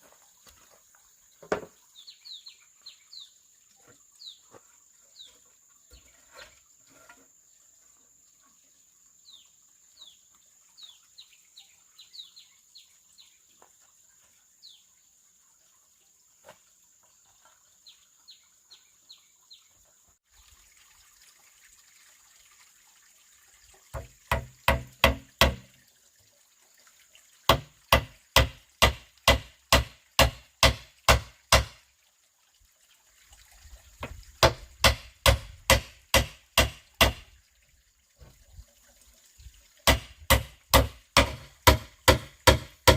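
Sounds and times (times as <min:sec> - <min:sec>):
tool striking bamboo: 0:24.0 - 0:25.7, 0:27.5 - 0:31.8, 0:34.4 - 0:37.3, 0:39.9 - 0:42.9.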